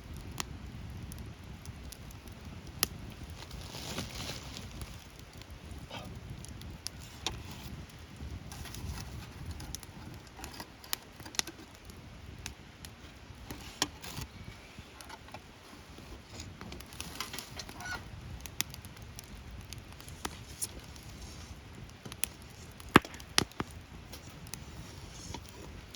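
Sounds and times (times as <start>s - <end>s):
campfire crackling and popping: 0.0s - 25.9s.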